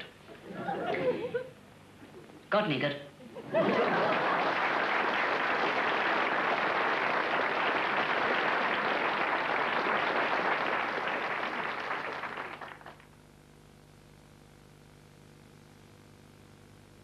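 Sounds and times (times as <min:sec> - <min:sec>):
audience applauding: 0:03.5 - 0:13.2.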